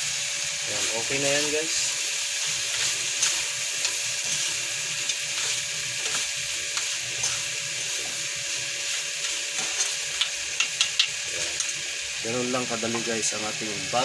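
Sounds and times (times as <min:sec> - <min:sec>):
shrimp sizzling in a frying pan: 0:00.0 - 0:14.0
spatula clicking against pan: 0:10.2 - 0:11.2.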